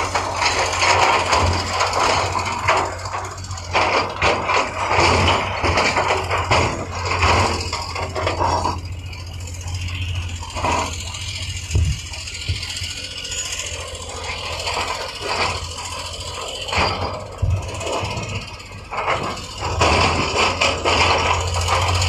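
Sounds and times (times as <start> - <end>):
diesel engine running: 0.0 - 22.0
scraping and rattling: 0.0 - 22.0.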